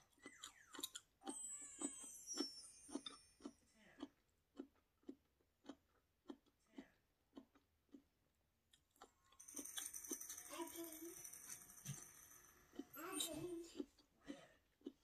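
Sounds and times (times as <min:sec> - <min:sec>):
chewing with wet mouth clicks: 0:00.0 - 0:01.4, 0:02.9 - 0:09.2, 0:13.7 - 0:15.0.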